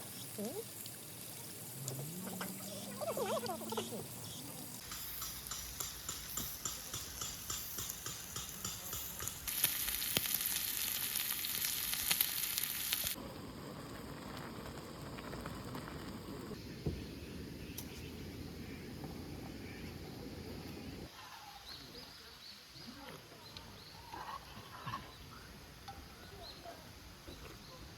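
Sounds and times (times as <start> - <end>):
meat sizzling in a pan: 7.7 - 13.2.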